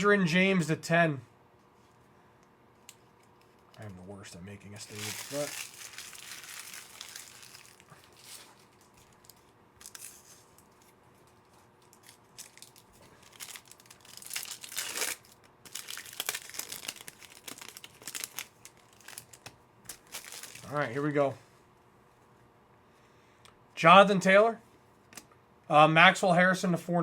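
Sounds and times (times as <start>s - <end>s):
foil wrappers crinkling and tearing: 4.8s - 21.1s.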